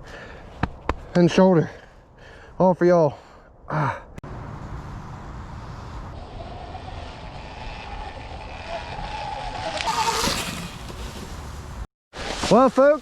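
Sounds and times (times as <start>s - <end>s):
tyres rumbling on trail: 4.3s - 11.9s.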